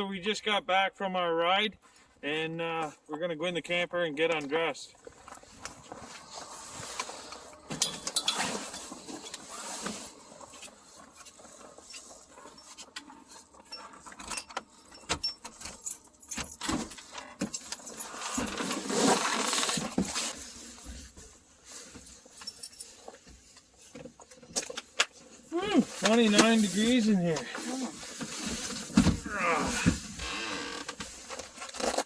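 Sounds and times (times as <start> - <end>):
gear rustling: 5.0 - 23.2.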